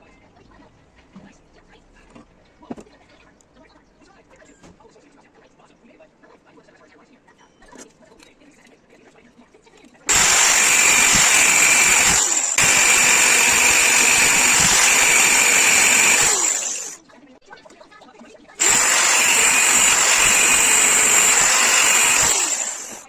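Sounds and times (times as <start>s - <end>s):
electric power tool whining: 10.1s - 17.0s, 18.6s - 23.0s.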